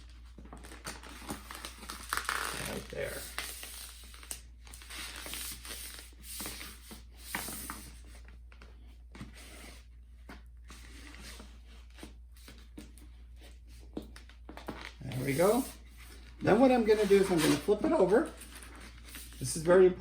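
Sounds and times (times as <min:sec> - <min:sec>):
poster board rustling: 0:13.9 - 0:19.7.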